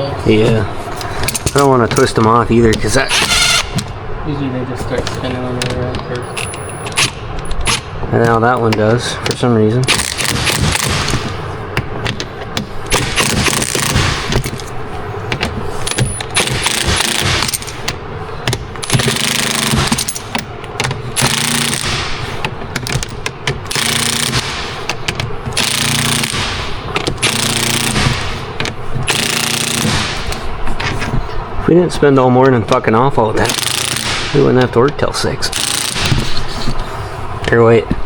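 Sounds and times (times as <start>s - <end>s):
impact wrench hammering bolts: 1.2s - 4.0s, 5.0s - 31.2s, 33.4s - 36.7s.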